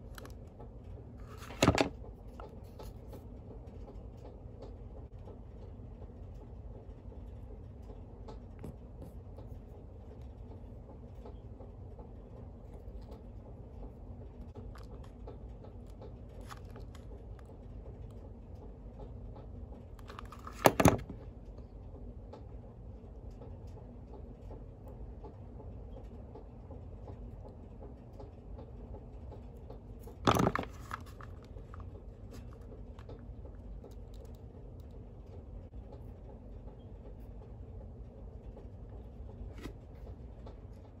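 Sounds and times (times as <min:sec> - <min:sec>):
handling small parts and tools: 0:01.2 - 0:03.2, 0:20.0 - 0:21.2, 0:30.0 - 0:33.2.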